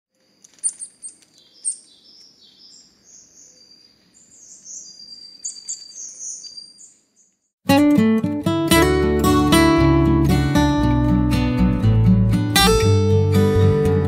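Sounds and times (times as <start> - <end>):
birds chirping and warbling: 0.4 - 7.6.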